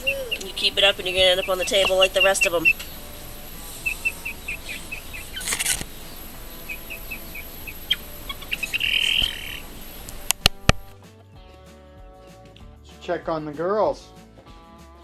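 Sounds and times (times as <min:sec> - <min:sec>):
chicks peeping: 0:00.0 - 0:11.0
rustle: 0:01.7 - 0:11.0.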